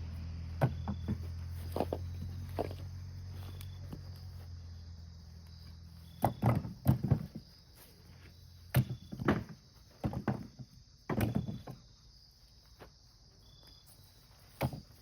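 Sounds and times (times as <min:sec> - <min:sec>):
low engine hum: 0:00.0 - 0:09.2
insects chirring: 0:00.0 - 0:15.0
knocks and thuds: 0:00.6 - 0:02.8, 0:06.2 - 0:07.5, 0:08.7 - 0:11.9.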